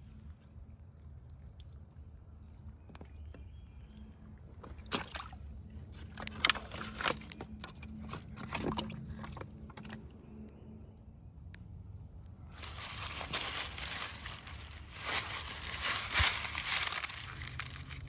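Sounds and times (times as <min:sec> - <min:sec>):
water sloshing around paddle: 0:04.6 - 0:10.0.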